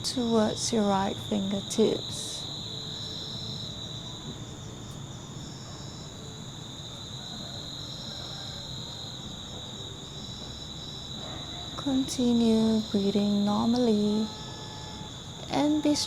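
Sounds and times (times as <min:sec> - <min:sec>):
crickets chirping chorus: 0:00.0 - 0:16.0
higher insect trilling: 0:10.2 - 0:16.0.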